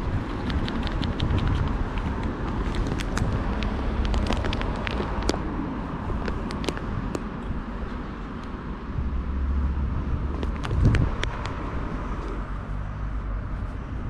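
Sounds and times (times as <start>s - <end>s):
low outdoor rumble: 0.0s - 14.0s
sharp clicks and taps: 0.3s - 5.4s, 6.2s - 7.2s.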